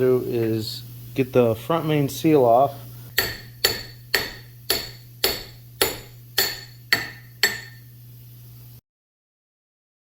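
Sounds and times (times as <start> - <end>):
hammer blows on metal: 3.1 - 7.9.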